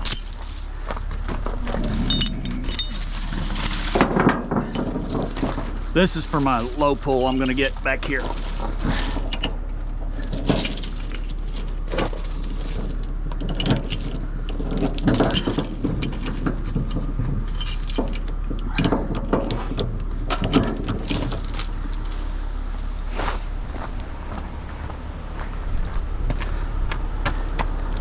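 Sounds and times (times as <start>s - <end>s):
chains clinking and rattling: 0.0s - 22.4s
low engine drone: 0.0s - 28.0s.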